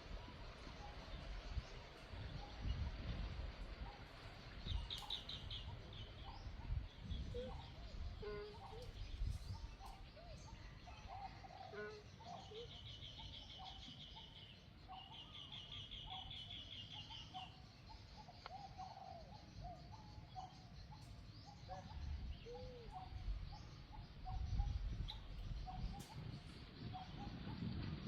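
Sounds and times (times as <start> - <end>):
wind rumble on microphone: 0.0 - 10.8, 21.6 - 28.0
birds chirping and trilling: 0.8 - 28.0.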